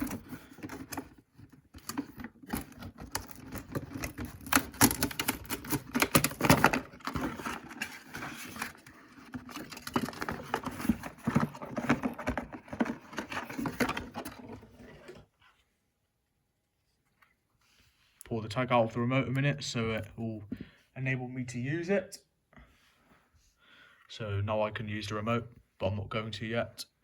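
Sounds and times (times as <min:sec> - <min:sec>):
hands handling plastic remote: 0:00.0 - 0:15.2
packaging rustling: 0:00.0 - 0:15.3.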